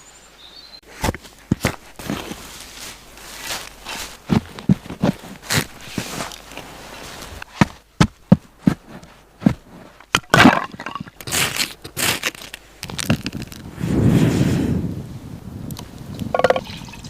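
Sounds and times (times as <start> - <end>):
scraping sounds: 1.0 - 7.8.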